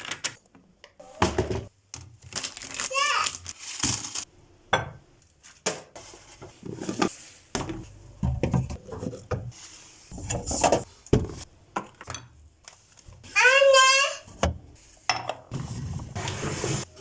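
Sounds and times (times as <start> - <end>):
household items clattering: 6.0 - 11.4.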